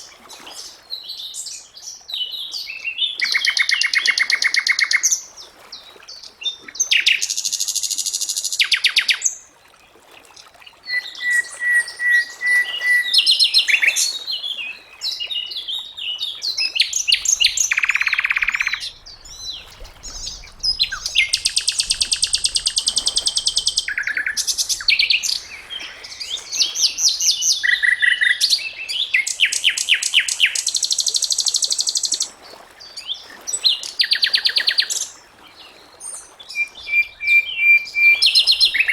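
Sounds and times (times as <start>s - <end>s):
flycatcher singing: 16.6s - 28.7s.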